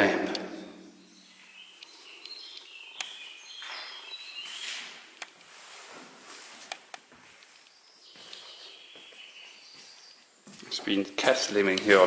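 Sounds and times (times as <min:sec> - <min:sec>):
birds chirping: 0:00.0 - 0:05.4, 0:06.9 - 0:12.0
soft rustles: 0:04.4 - 0:08.7.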